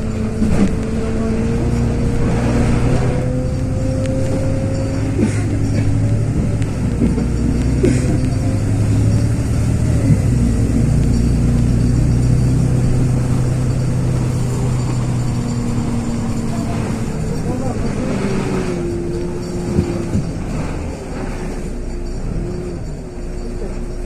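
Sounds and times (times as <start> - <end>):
bus engine drone: 0.0 - 24.0.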